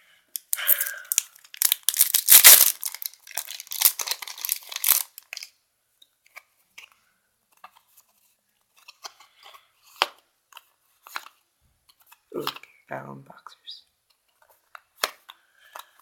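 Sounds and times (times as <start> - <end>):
wrapper and cards rustling: 0.4 - 5.5
foil pack tearing open: 0.5 - 5.5.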